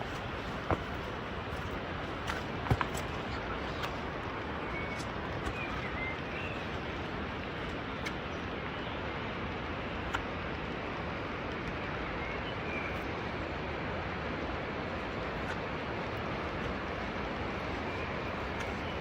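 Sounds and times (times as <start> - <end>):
bird chirping: 3.2 - 9.0.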